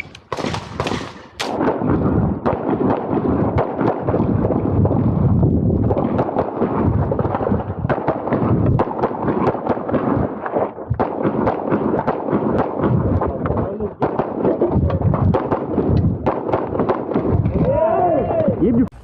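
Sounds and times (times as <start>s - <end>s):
handgun shots in fast strings: 0.0s - 1.6s.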